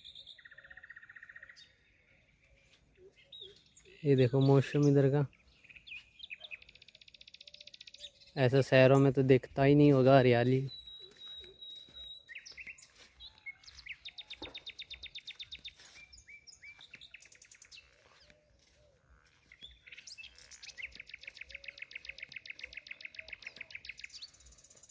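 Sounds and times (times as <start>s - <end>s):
birds chirping: 0.0s - 24.9s
bird trilling: 16.3s - 24.9s.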